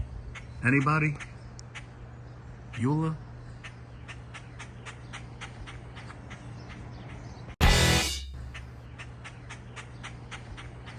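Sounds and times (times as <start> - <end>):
loud sudden noise: 7.6 - 8.7
short high chirps: 7.6 - 8.7.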